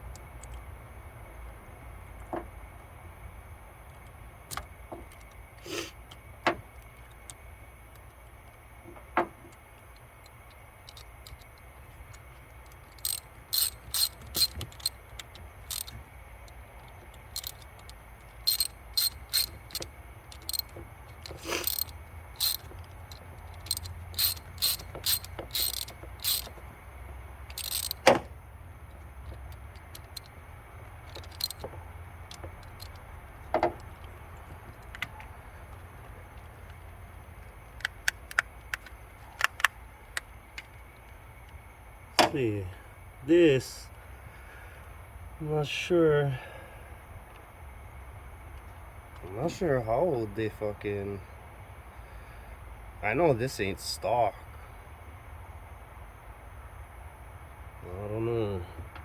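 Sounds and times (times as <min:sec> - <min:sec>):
hand tools clicking on metal: 0:09.5 - 0:26.8, 0:27.4 - 0:28.2, 0:28.9 - 0:30.4, 0:31.0 - 0:35.8.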